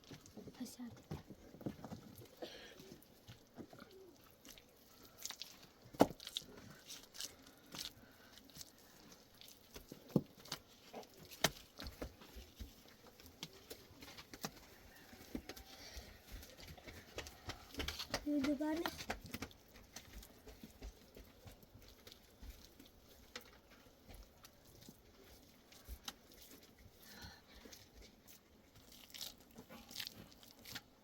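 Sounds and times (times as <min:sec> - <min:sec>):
faint background noise: 0:00.0 - 0:31.0
irregular knocks and taps: 0:15.3 - 0:22.0.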